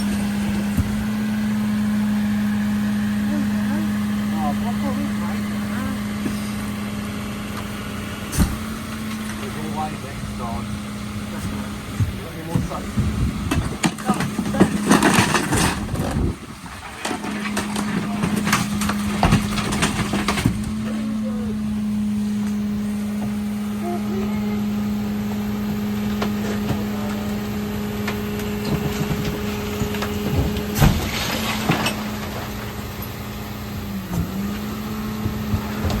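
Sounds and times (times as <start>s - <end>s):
truck engine humming: 0.0s - 36.0s
knocks and rattles: 11.3s - 21.8s, 26.0s - 32.8s.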